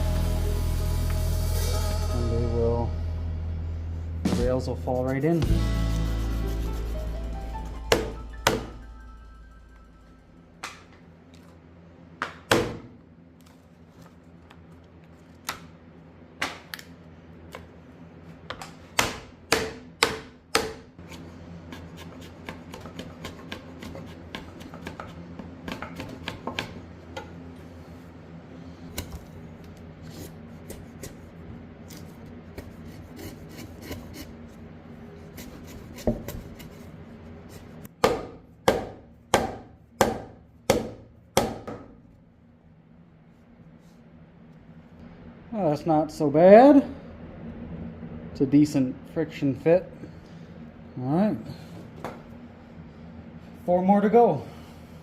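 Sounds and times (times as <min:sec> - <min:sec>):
mallet knocking on wood: 0:07.9 - 0:08.8, 0:38.0 - 0:41.9.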